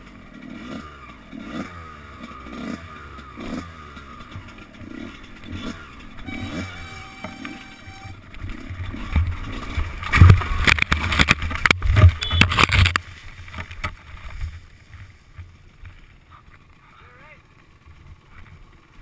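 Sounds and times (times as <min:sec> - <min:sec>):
dirt bike crashing thumps: 0:08.5 - 0:16.0.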